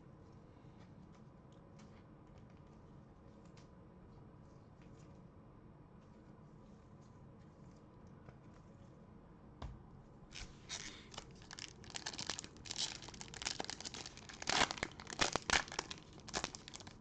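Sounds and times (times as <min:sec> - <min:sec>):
foil wrapper tearing and crinkling: 0:10.3 - 0:17.0.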